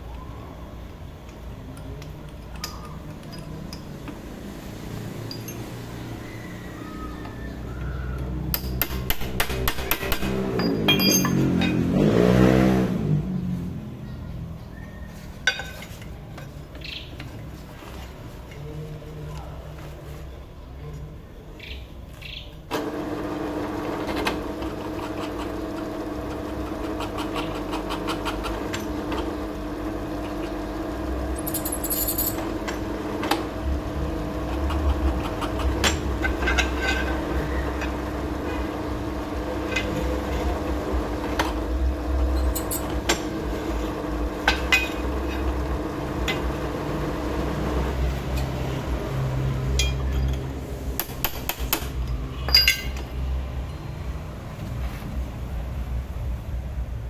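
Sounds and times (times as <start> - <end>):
metallic clinks and knocks: 5.2 - 5.8, 8.6 - 11.8, 31.4 - 32.4, 42.4 - 43.0, 49.8 - 50.5, 51.3 - 53.3.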